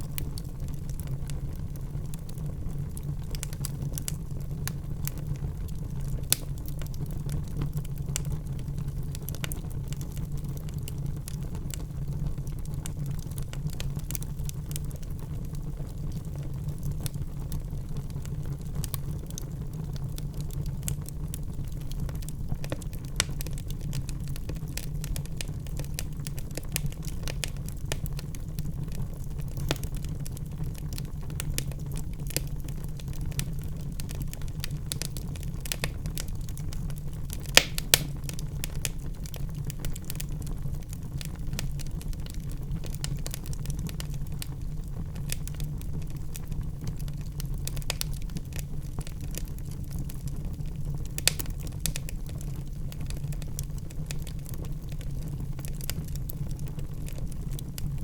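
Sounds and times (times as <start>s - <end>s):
logs crackling in fire: 0.0s - 58.0s
low rumble of flames: 0.0s - 58.0s
loud fire pops: 21.5s - 44.5s, 45.2s - 52.4s.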